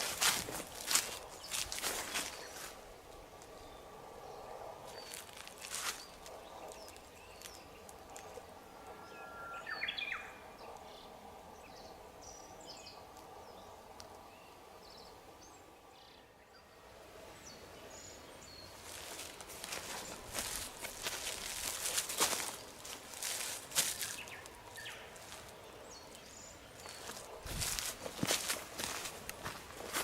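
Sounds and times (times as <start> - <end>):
footsteps: 0.0 - 2.7, 18.8 - 24.6, 26.8 - 30.0
birds calling: 0.0 - 2.8, 17.4 - 30.0.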